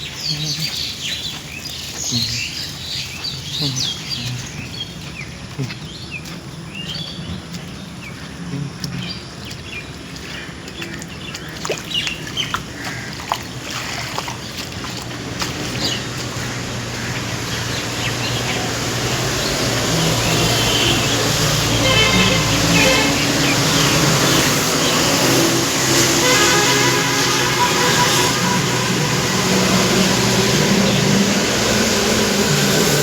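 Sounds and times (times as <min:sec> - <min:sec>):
birds chirping: 0:00.0 - 0:33.0
broad rushing noise: 0:15.2 - 0:33.0.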